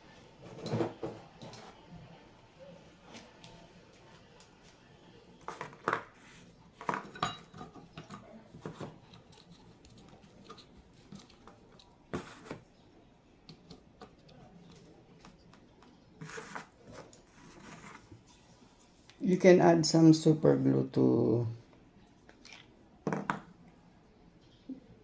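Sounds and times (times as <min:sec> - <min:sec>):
metal hardware clinking: 0:07.0 - 0:08.2.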